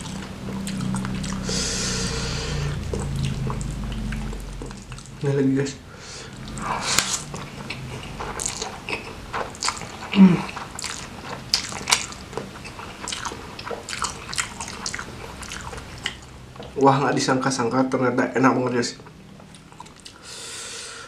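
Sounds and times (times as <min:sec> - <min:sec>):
wet chewing and lip smacking: 0:00.0 - 0:01.8, 0:02.7 - 0:05.2, 0:06.3 - 0:16.8, 0:19.0 - 0:20.2.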